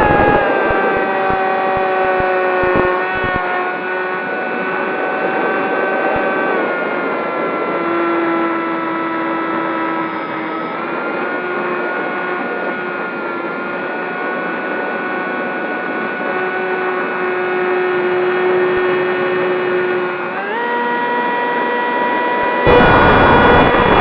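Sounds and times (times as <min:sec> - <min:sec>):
rushing air noise: 0:00.0 - 0:03.5, 0:22.6 - 0:24.0
rc plane motors whining: 0:00.0 - 0:24.0.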